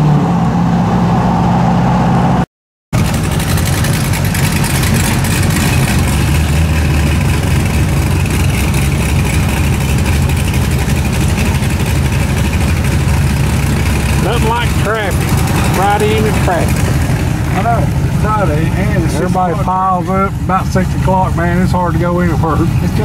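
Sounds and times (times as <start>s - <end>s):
road noise: 0.0s - 23.0s
vehicle engine running: 0.0s - 23.0s.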